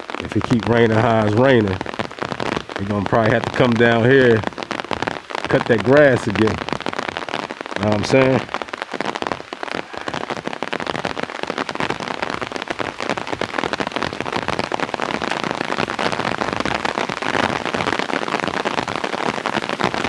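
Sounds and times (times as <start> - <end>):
rain pattering on an umbrella: 0.0 - 20.0.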